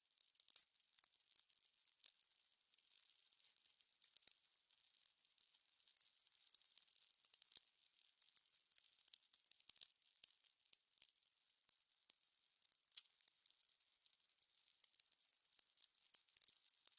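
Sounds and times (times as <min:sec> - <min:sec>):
fire crackling: 0:00.2 - 0:09.9.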